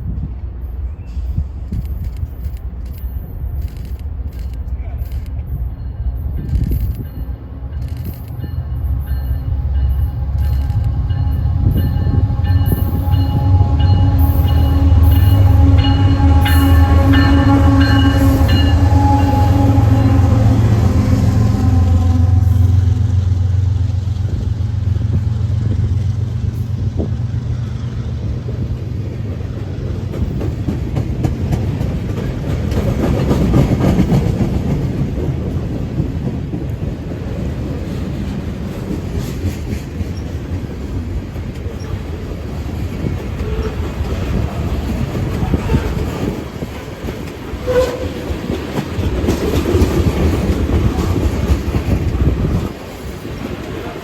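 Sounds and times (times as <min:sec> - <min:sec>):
train wheels clattering on rails: 0:22.8 - 0:54.0.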